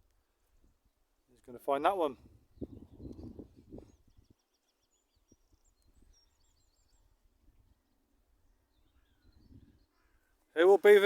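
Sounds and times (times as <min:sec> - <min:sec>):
faint small bird chirps: 0:02.5 - 0:07.7, 0:08.3 - 0:10.4.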